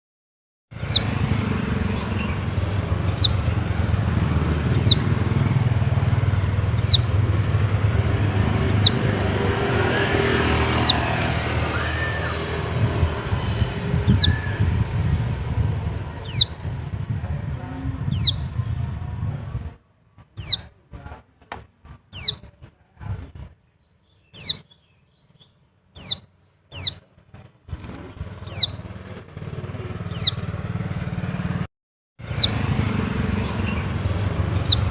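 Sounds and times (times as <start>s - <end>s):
steady low rumble: 0.8s - 20.5s.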